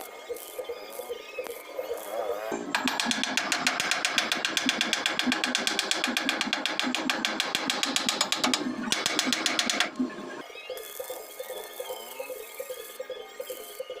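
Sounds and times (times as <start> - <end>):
rapid mechanical clicking: 2.7 - 10.4.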